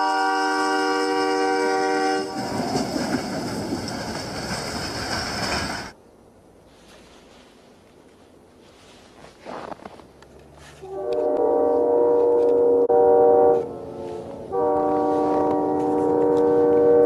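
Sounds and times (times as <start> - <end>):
locomotive air horn chord: 0.0 - 2.5, 10.8 - 17.0
snowplow train rushing past: 0.0 - 6.0, 10.7 - 17.0.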